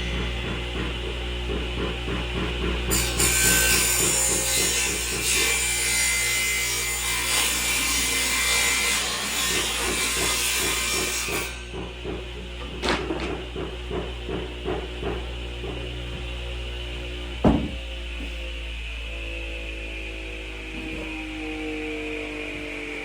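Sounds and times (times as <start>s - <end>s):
saw cutting wood: 0.0s - 13.4s, 18.1s - 23.0s.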